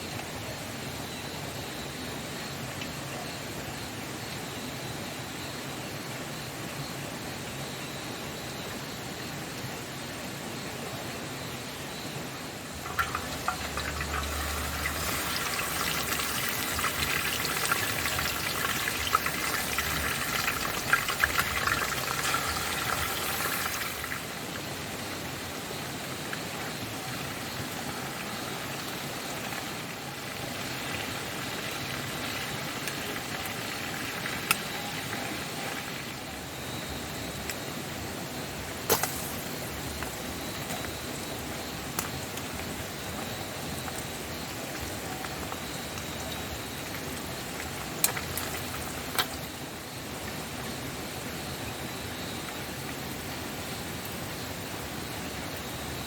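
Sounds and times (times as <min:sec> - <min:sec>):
water splashing and trickling: 0:12.7 - 0:24.5, 0:41.8 - 0:49.5.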